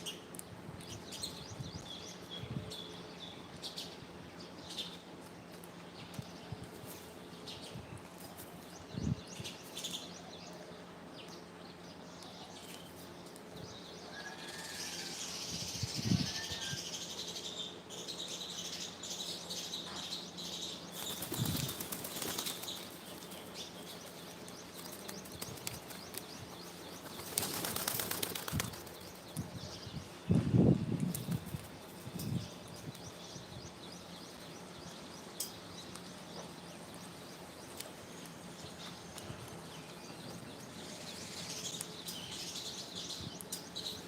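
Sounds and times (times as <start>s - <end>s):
bird wings flapping: 21.0s - 23.4s, 24.8s - 26.3s, 27.0s - 29.1s.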